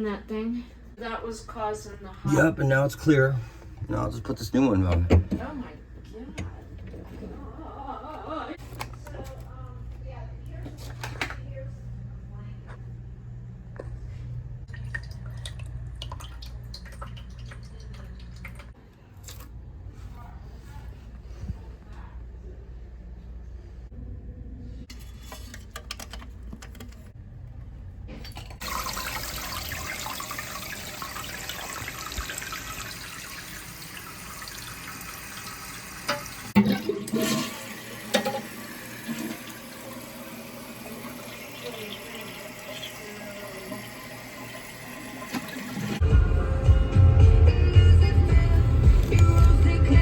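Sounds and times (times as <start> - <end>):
toilet flushing and refilling: 2.3 - 5.8, 14.6 - 18.8, 28.2 - 46.0.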